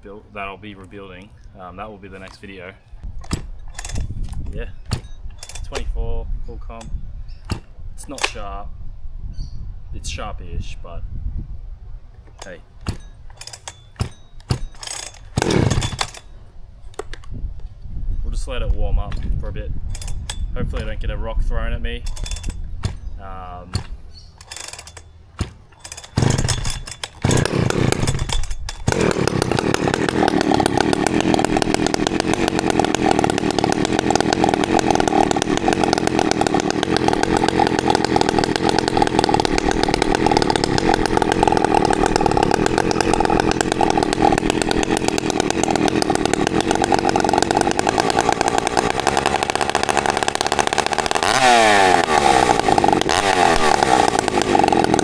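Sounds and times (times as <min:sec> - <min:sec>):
chainsaw engine revving: 0:02.1 - 0:06.0, 0:07.5 - 0:08.5, 0:12.4 - 0:16.3, 0:19.1 - 0:21.0, 0:22.0 - 0:55.0.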